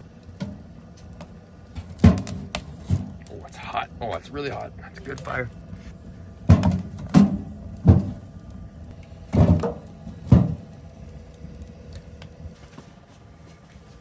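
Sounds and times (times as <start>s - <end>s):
heavy dull thumps: 5.6s - 12.9s.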